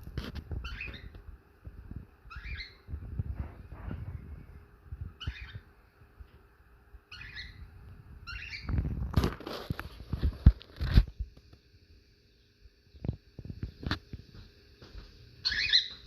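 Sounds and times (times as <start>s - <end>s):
birds high calls: 0.5s - 1.2s, 2.3s - 3.0s, 5.1s - 5.8s, 7.1s - 8.8s, 15.4s - 16.0s.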